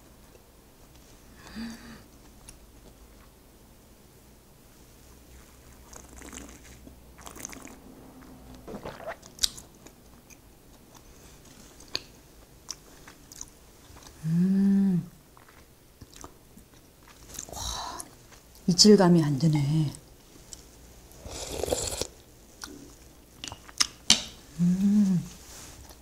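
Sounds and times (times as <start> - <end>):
closed-mouth humming: 6.0 - 10.0, 24.6 - 25.4
quiet chewing with clicks: 9.4 - 14.2, 15.3 - 18.7, 22.6 - 24.0.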